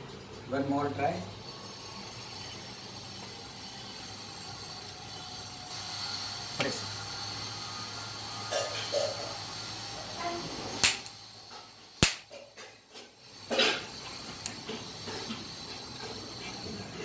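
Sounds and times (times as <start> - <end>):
sharp electrical snap: 10.8 - 11.2, 12.0 - 12.3.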